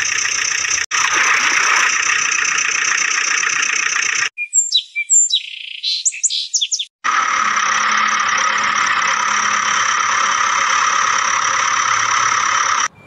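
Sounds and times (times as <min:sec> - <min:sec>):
toy engine mechanical whir: 0:00.0 - 0:04.3, 0:07.0 - 0:12.9.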